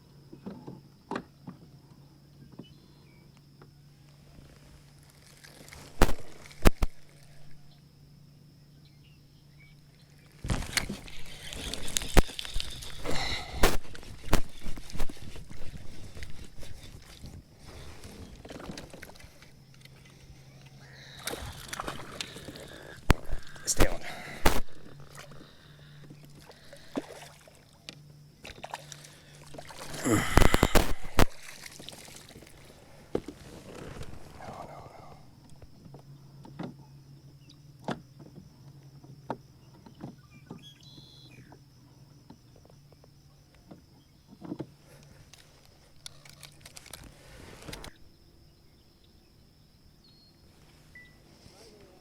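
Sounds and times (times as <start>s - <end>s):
knocks and clatter on kayak: 0.2s - 1.8s, 10.3s - 20.2s, 35.4s - 45.6s
rustling: 4.1s - 7.6s, 10.1s - 20.4s, 28.9s - 35.0s
water sloshing against hull: 4.1s - 7.8s, 9.8s - 48.2s.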